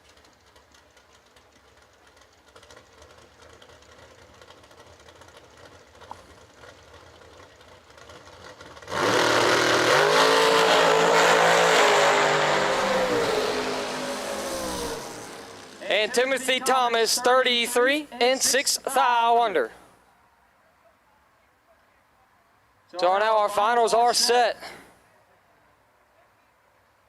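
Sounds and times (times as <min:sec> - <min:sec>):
distant engine rumble: 0:00.0 - 0:20.0
drag race engines blasting: 0:00.1 - 0:19.9.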